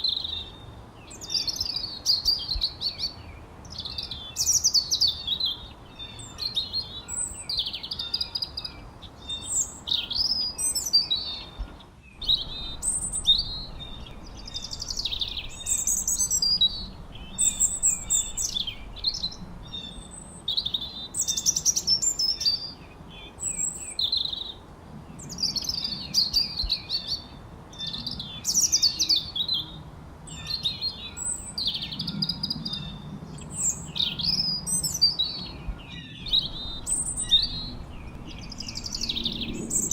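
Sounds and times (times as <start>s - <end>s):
faint steady hiss: 0.0s - 32.1s, 32.8s - 39.9s
songbirds chirping and whistling: 0.0s - 39.9s.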